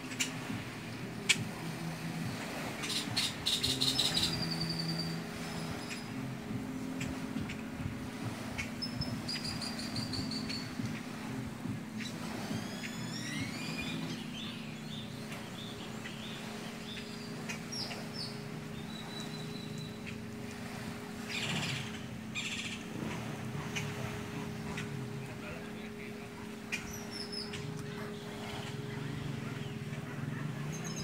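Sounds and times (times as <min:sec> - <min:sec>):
birds calling and trilling: 0:00.0 - 0:31.0
steady low hum: 0:00.0 - 0:31.0.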